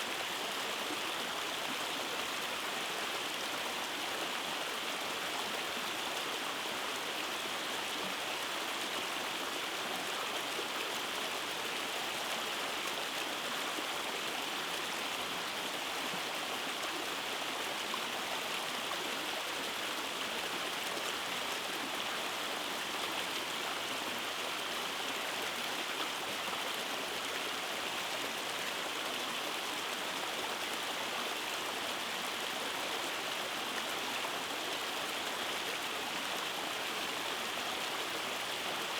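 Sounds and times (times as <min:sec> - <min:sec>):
stream water rushing and splashing: 0:00.0 - 0:38.9.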